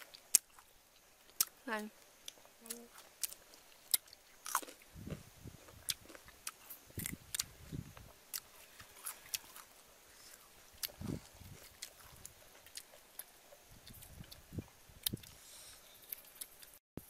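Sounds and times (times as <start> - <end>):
crunching raw mango: 2.2 - 14.4.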